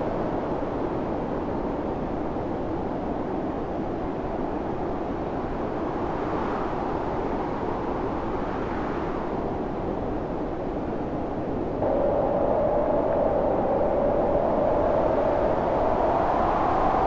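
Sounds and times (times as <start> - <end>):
snowstorm wind blowing: 5.8 - 17.0.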